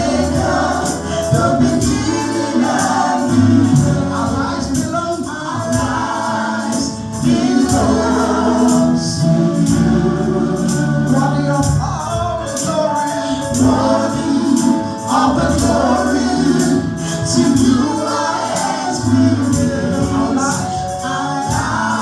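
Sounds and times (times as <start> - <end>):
choir singing: 0.0 - 11.6, 13.5 - 22.0
bass notes: 0.0 - 12.6, 13.4 - 22.0.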